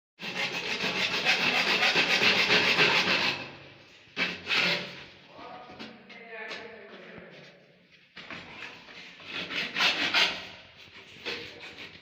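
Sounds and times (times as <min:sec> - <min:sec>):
tool rasping on plastic pipe: 0:00.2 - 0:03.6, 0:04.2 - 0:05.1, 0:08.6 - 0:12.0.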